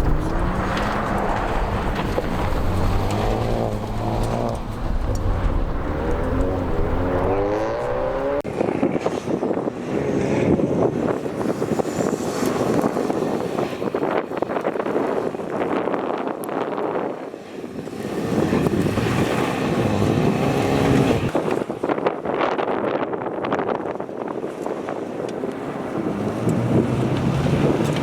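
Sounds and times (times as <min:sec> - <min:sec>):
car engine accelerating hard: 0:00.0 - 0:08.5, 0:18.2 - 0:21.3
rough noisy car sound: 0:00.0 - 0:28.0.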